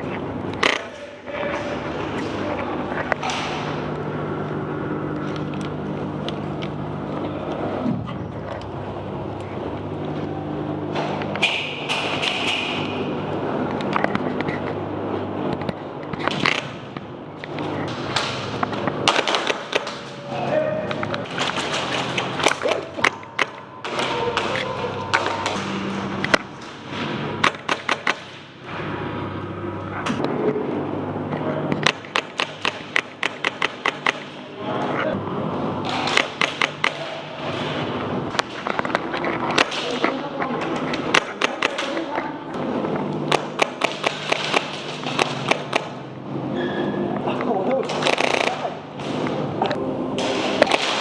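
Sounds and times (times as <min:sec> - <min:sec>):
steady low hum: 0:00.0 - 0:51.0
airsoft guns firing: 0:17.9 - 0:20.1, 0:35.8 - 0:37.2, 0:43.3 - 0:46.0, 0:47.8 - 0:49.2, 0:50.2 - 0:51.0
airsoft gun shots: 0:50.2 - 0:51.0.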